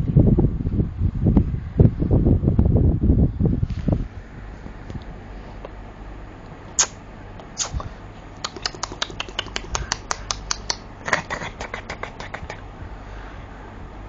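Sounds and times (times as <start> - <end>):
baby smacking and sucking: 7.6 - 12.6.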